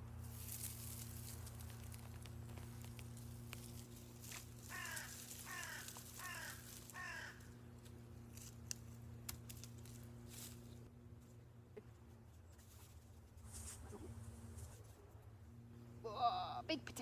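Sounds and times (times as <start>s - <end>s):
crow cawing: 4.6s - 7.6s.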